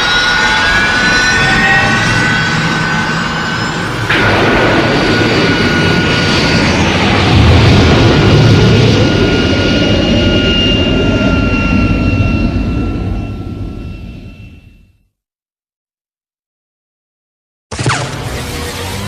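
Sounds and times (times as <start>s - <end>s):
jet engine roaring: 0.0s - 14.6s
high engine whine: 0.0s - 15.1s, 17.7s - 19.0s.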